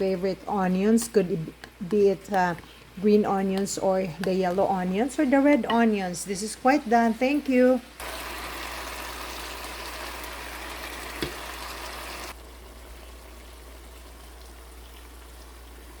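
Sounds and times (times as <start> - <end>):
frying pan sizzling: 5.0 - 16.0.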